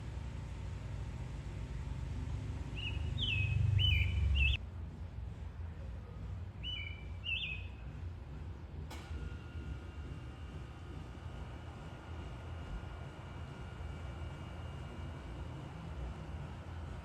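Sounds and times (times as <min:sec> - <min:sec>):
songbird whistling: 0:02.8 - 0:04.6, 0:06.6 - 0:07.9.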